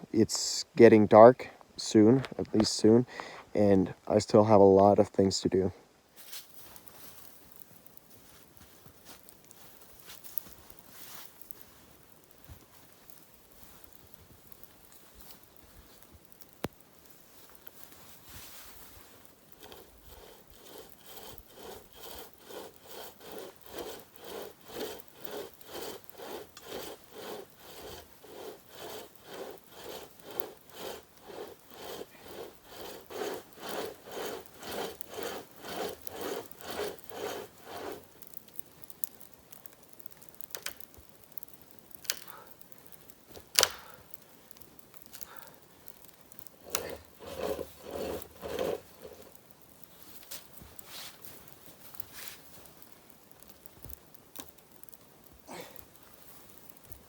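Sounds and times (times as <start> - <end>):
hand saw cutting wood: 19.5 - 38.1, 46.6 - 49.4.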